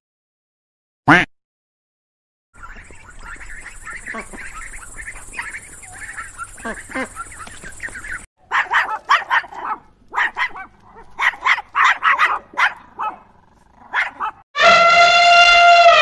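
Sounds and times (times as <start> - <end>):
dog barking: 8.4 - 14.4.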